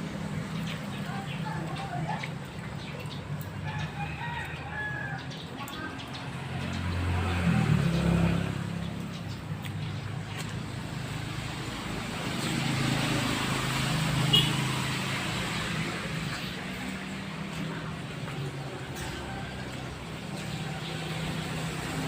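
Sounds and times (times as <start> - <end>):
vehicle engine hum passing: 0.0 - 22.0.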